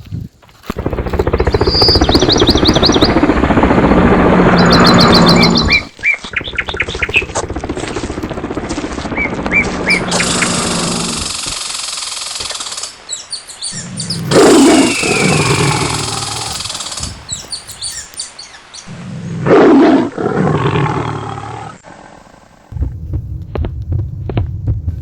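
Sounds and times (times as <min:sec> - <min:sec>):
bird calls: 0:01.1 - 0:03.3, 0:04.6 - 0:07.6, 0:09.1 - 0:19.3
rapid bird chirps: 0:01.1 - 0:03.4, 0:04.5 - 0:08.0, 0:09.1 - 0:18.9
long low animal calls: 0:04.1 - 0:08.5, 0:13.8 - 0:18.2.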